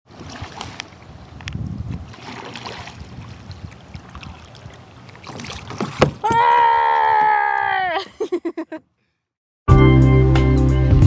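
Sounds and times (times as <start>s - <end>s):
water splashing around kayak: 0.0s - 7.3s.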